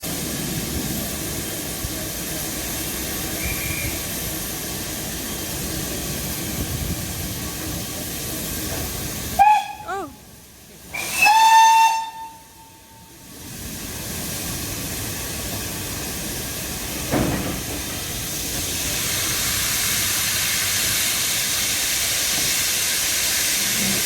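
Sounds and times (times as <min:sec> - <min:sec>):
steam locomotive hissing: 0:00.0 - 0:24.0
steam whistle: 0:03.4 - 0:04.0, 0:09.4 - 0:10.0, 0:10.9 - 0:13.2.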